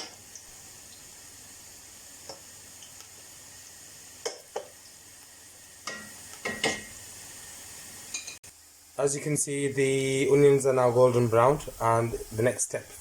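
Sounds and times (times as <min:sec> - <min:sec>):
onions sizzling in a frying pan: 0:00.0 - 0:13.0
spoon scraping and knocking a pan: 0:05.8 - 0:07.0.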